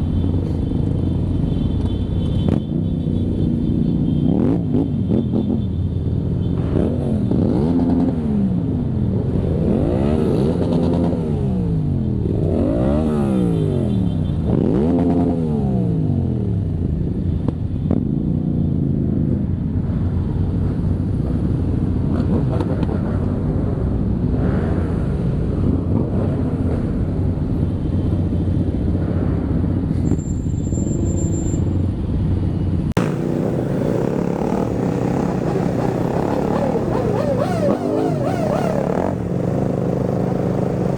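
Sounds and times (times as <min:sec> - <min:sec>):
motorcycle engines revving: 0:00.0 - 0:30.2, 0:33.0 - 0:40.9
many motorcycles running: 0:00.0 - 0:40.9.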